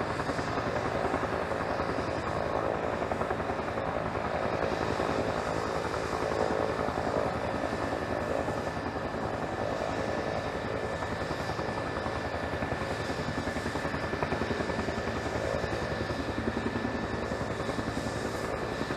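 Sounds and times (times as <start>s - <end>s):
helicopter rotor beat: 0.0s - 18.9s.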